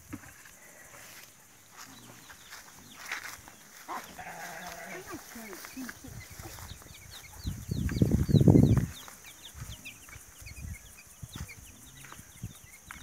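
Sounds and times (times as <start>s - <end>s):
small birds peeping: 0.0s - 13.0s
leafy rustling and crackling: 1.4s - 7.2s.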